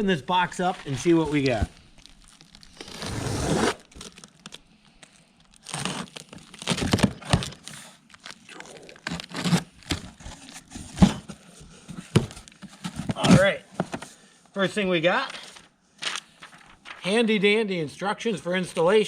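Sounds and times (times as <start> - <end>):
rustling and crinkling: 0.4 - 14.2, 15.2 - 17.2
cardboard box tearing: 2.4 - 4.3, 5.6 - 7.7, 9.0 - 11.2.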